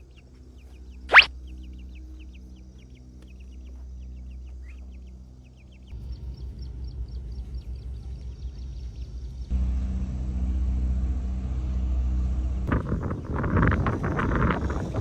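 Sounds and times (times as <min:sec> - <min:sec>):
low steady hum: 0:00.0 - 0:15.0
high bird chirps: 0:00.9 - 0:05.1
low rumbling noise: 0:03.6 - 0:15.0.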